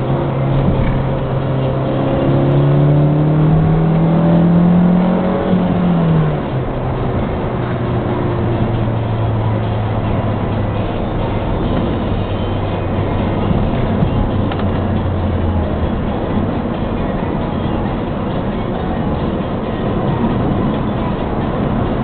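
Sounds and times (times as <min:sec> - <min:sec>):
car engine accelerating: 0:00.0 - 0:22.0
road noise: 0:00.0 - 0:22.0.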